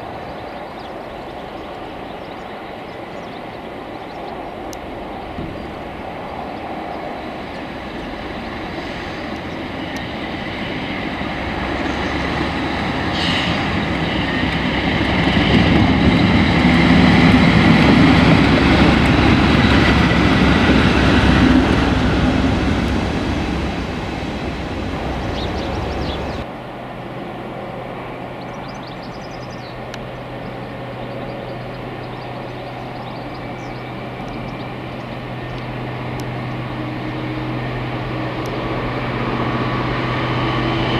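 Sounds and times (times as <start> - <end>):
train passing: 2.7 - 26.5, 33.4 - 40.9
steady low hum: 20.6 - 26.4.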